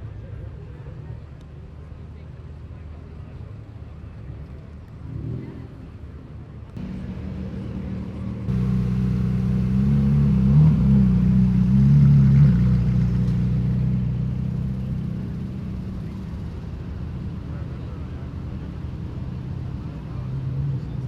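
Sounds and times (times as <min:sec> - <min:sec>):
car engine pulling away: 0:06.8 - 0:21.0.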